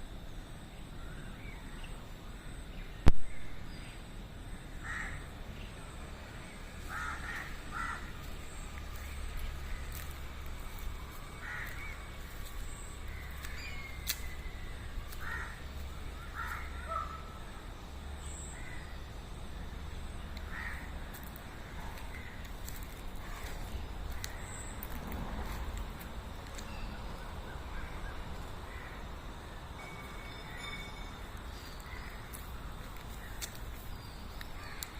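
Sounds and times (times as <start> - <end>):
steady low rumble: 0.0 - 30.4
harsh bird calls: 4.8 - 25.7.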